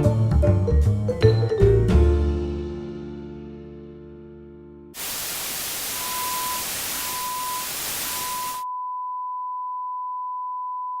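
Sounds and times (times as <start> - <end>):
steady high tone: 5.0 - 8.6
white-noise static: 5.0 - 8.6
high beep: 5.8 - 8.6.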